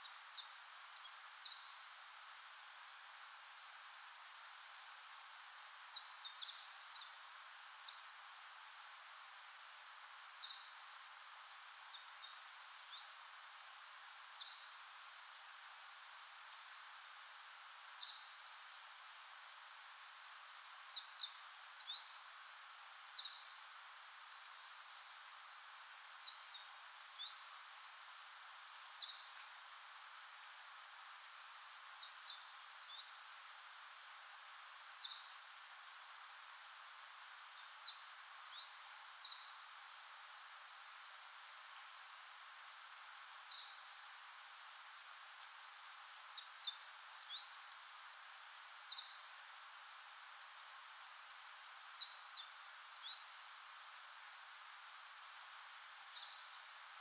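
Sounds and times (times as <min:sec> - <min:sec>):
small birds chirping: 0:00.0 - 0:02.4, 0:05.8 - 0:09.7, 0:10.3 - 0:13.3, 0:14.0 - 0:16.9, 0:18.0 - 0:19.3, 0:20.0 - 0:22.3, 0:23.0 - 0:25.3, 0:26.0 - 0:31.0, 0:31.9 - 0:33.8, 0:34.8 - 0:40.7, 0:42.9 - 0:44.3, 0:45.5 - 0:49.6, 0:50.8 - 0:54.6, 0:55.7 - 0:57.0
faint background hiss: 0:00.0 - 0:57.0.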